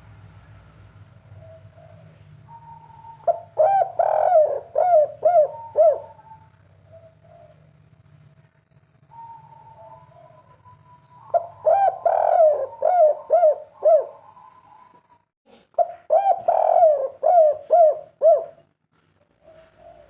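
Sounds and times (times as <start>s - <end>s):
dove cooing: 1.3s - 7.9s, 9.1s - 15.2s, 15.8s - 18.7s, 19.3s - 20.0s.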